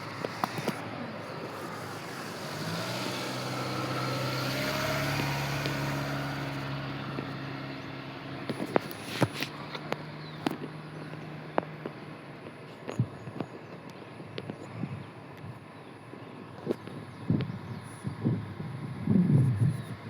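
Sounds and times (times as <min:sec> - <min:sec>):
vehicle passing by: 0:00.0 - 0:10.9.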